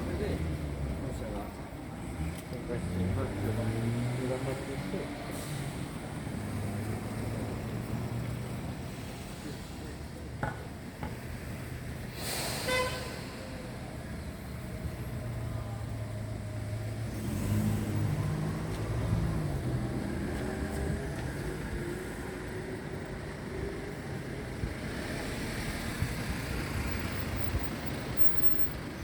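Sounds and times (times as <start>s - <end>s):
traffic noise: 0.0s - 29.0s
vehicle engine accelerating: 2.0s - 8.6s, 14.6s - 22.2s.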